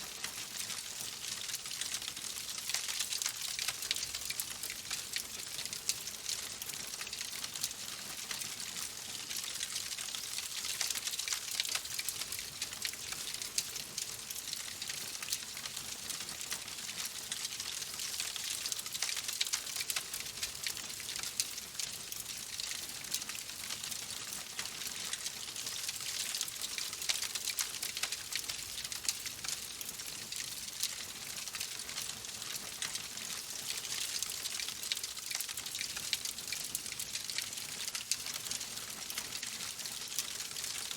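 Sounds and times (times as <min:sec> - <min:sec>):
wood fire crackling: 0:24.5 - 0:30.0.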